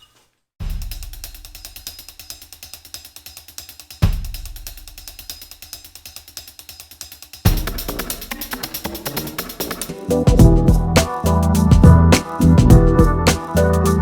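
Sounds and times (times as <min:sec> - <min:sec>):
hi-hat and drum beat: 0:00.6 - 0:14.0
background music: 0:07.5 - 0:14.0
deep bass hit: 0:10.3 - 0:14.0.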